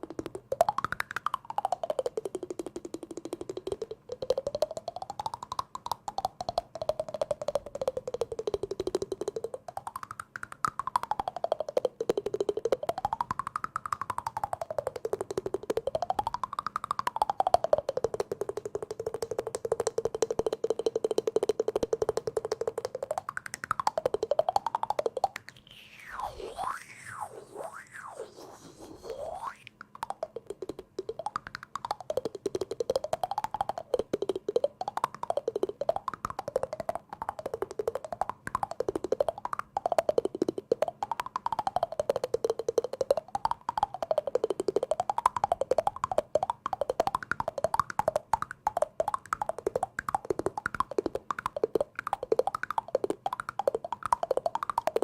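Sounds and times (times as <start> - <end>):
very fast tapping: 0.0 - 55.0
resonant tone sliding in pitch: 25.6 - 29.7.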